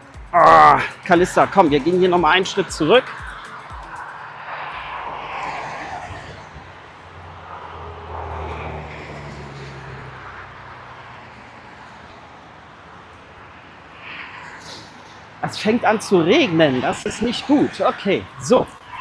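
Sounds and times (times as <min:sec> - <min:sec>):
low engine drone: 0:00.0 - 0:09.8.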